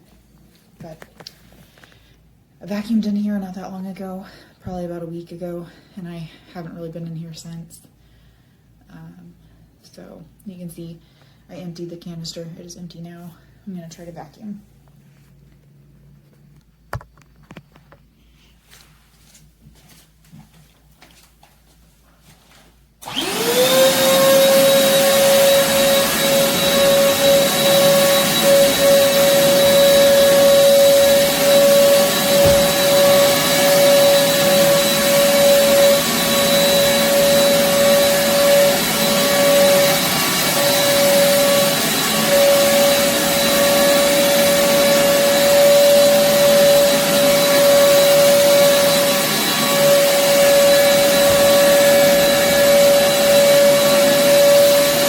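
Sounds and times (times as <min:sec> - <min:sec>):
person talking: 0:02.6 - 0:07.9, 0:08.9 - 0:14.7
vacuum cleaner whining: 0:23.0 - 0:55.0.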